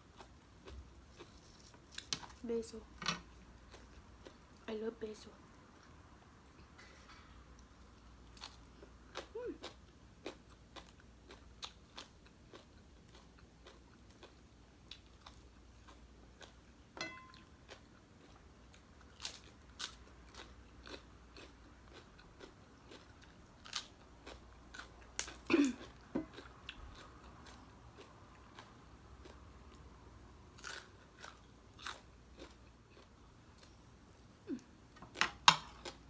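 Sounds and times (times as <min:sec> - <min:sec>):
person chewing crunchy food: 0:07.6 - 0:29.9, 0:30.6 - 0:33.9, 0:34.5 - 0:36.0.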